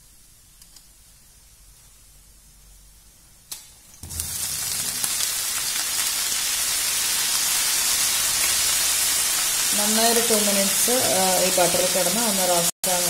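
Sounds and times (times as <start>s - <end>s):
vegetables sizzling in a frying pan: 3.9s - 13.0s.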